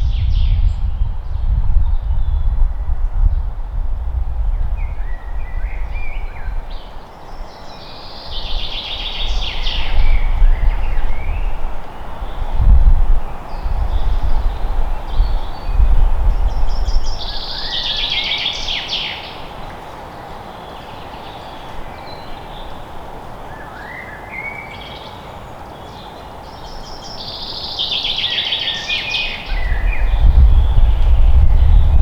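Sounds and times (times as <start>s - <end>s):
forest background hiss: 0.1s - 32.0s
songbird trilling: 25.8s - 32.0s
low rumble: 29.6s - 32.0s.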